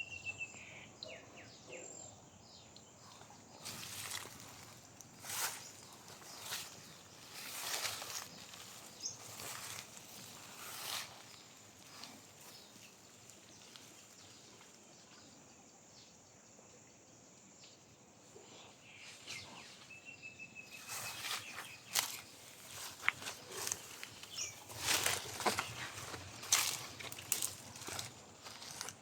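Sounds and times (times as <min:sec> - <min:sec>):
outdoor ambience: 0:00.0 - 0:29.0
footsteps on garden path: 0:03.1 - 0:14.8, 0:20.7 - 0:29.0.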